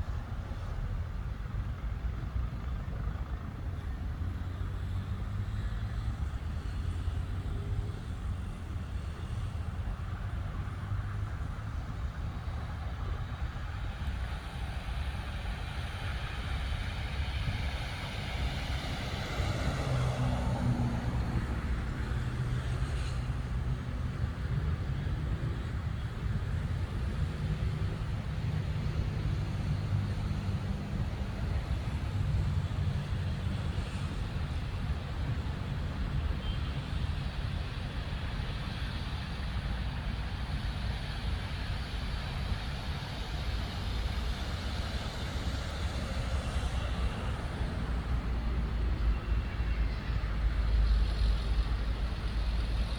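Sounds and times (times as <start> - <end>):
road traffic rumble: 0.0 - 52.9
vehicle passing by: 17.1 - 25.9.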